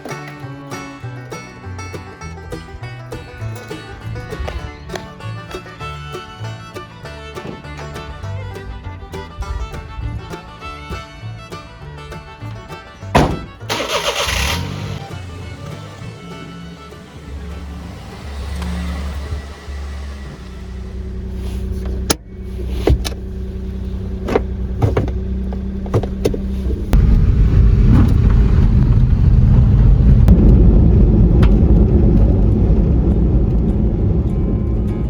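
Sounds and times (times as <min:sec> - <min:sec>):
engine and road rumble: 0:00.0 - 0:35.0
truck engine idling: 0:00.0 - 0:35.0
sharp clicks and knocks: 0:13.1 - 0:13.7.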